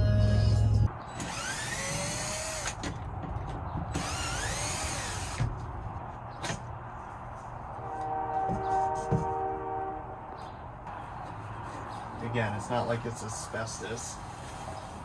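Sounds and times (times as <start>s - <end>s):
power drill running: 1.2s - 2.8s, 3.9s - 5.4s.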